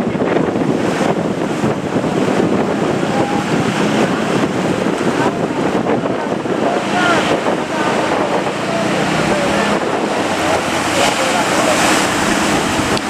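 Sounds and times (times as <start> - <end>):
heavy sea surf breaking: 0.0 - 13.0
wind buffeting microphone: 0.0 - 13.0.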